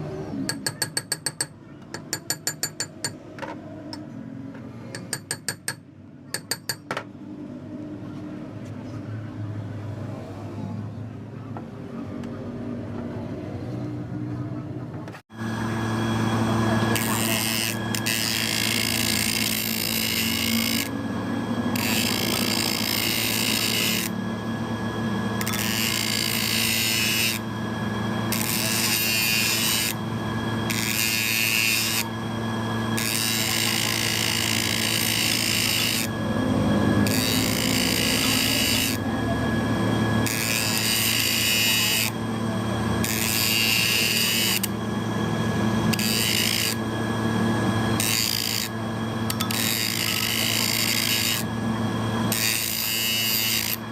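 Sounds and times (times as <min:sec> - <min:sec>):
machine motor hum: 0:07.0 - 0:53.9
metal cutting or grinding: 0:15.3 - 0:53.9.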